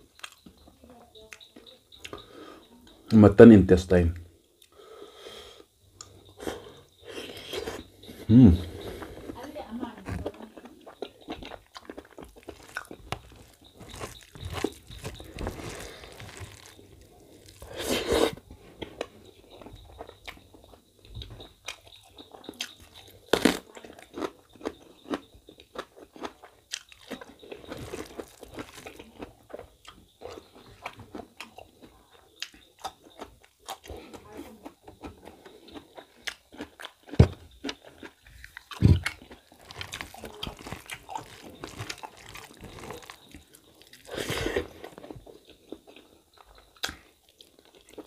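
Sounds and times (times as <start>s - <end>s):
man chewing food: 0.0s - 3.2s, 4.2s - 48.0s
clicking mouth noises: 6.0s - 6.2s, 46.8s - 47.4s.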